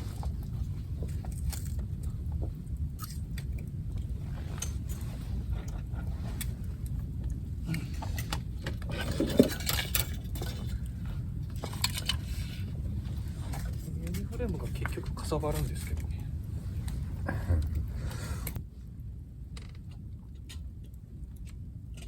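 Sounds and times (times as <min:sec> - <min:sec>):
steady low rumble: 0:00.0 - 0:22.0
metal camp gear clinking: 0:07.8 - 0:12.8.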